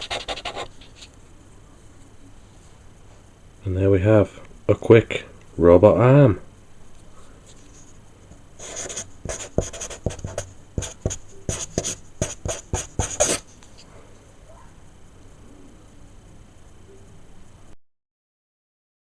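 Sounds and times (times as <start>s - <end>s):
marker scratching on paper: 0.0s - 1.1s, 8.6s - 13.4s.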